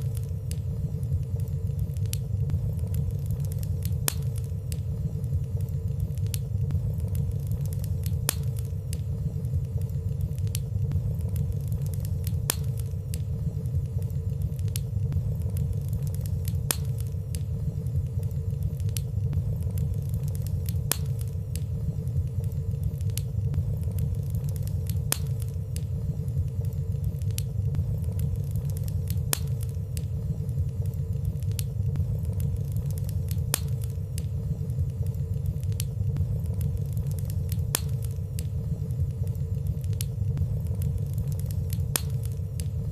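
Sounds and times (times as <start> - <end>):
faint steady hum: 0.0 - 42.9
fire crackling: 0.0 - 42.9
fire flames rumbling: 0.0 - 42.9.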